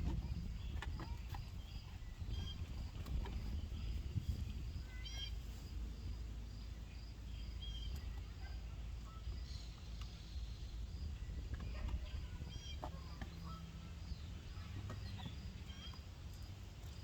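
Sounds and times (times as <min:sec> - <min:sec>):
low outdoor background rumble: 0:00.0 - 0:17.0
small birds chirping: 0:00.0 - 0:17.0.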